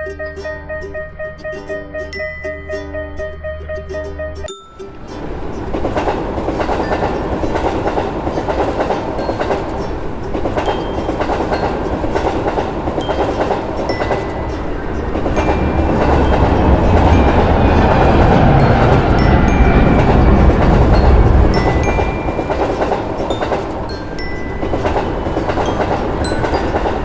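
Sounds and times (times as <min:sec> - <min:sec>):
train wheels clickety-clack: 0:05.6 - 0:27.0.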